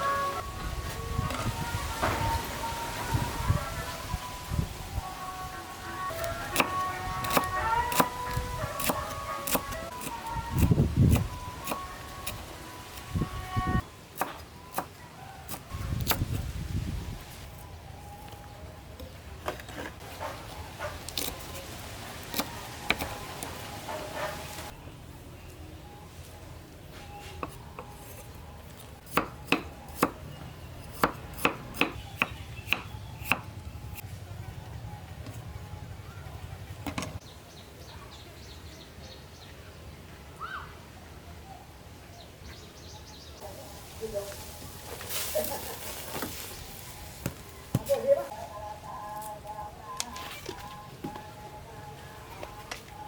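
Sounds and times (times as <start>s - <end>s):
small birds chirping: 29.4s - 34.0s.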